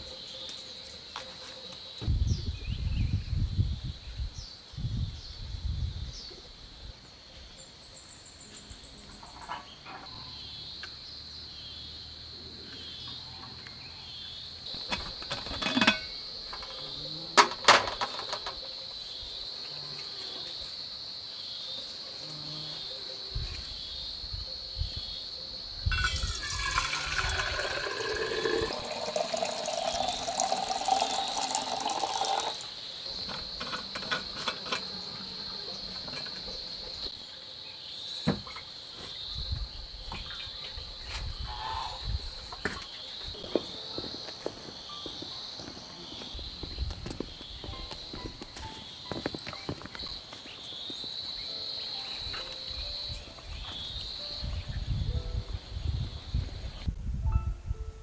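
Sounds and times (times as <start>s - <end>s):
insects trilling: 2.9s - 56.9s
water rushing: 26.0s - 32.7s.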